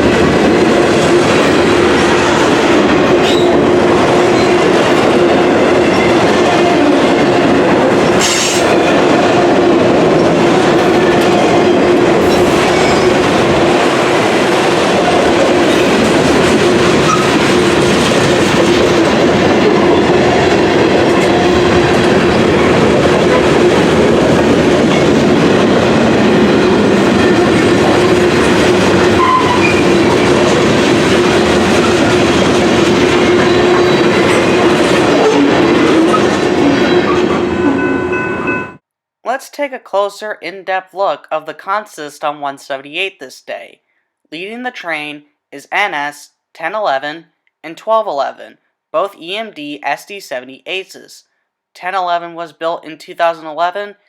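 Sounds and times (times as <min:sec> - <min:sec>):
freight train rumble: 0:00.0 - 0:38.8.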